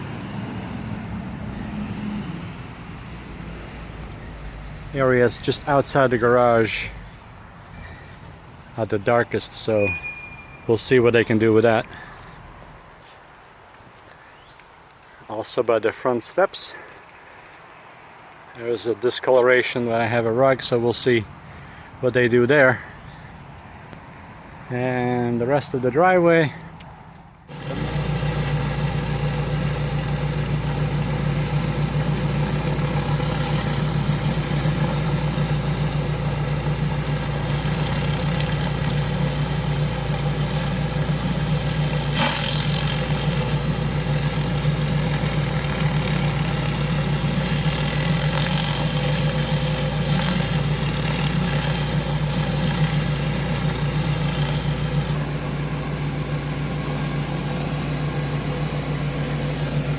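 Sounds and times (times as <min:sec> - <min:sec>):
pressure washer engine running: 0:27.5 - 0:59.9.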